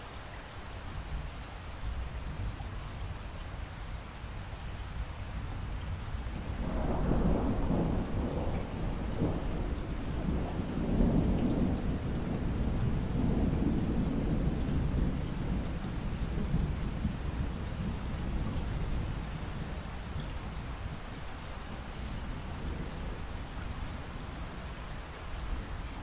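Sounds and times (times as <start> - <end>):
steady rain: 0.0 - 26.0
rolling rumble of thunder: 4.9 - 24.8.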